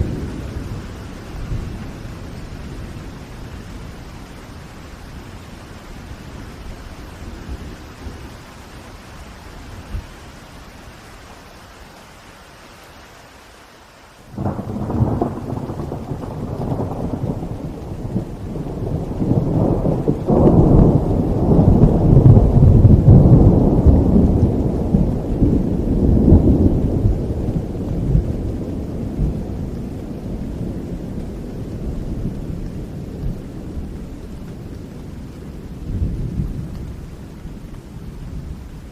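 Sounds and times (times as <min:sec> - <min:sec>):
thunder clap and rumble: 0:00.0 - 0:04.6, 0:14.3 - 0:38.9
steady rain: 0:00.0 - 0:38.9.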